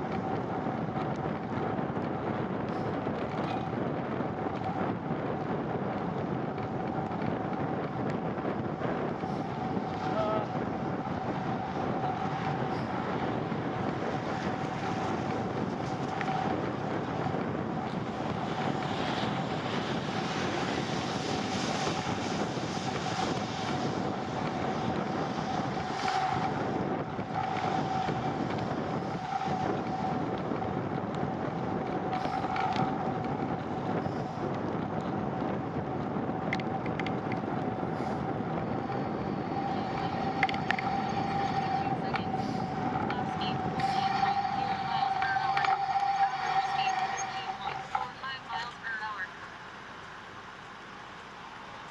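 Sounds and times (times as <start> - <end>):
wind and road noise: 0.0 - 51.9
high-pitched hum: 6.5 - 34.5, 36.6 - 49.6.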